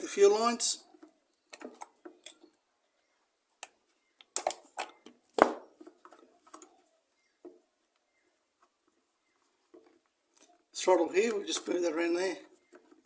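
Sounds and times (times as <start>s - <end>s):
clicks and rubbing of hoses: 0.9s - 2.6s.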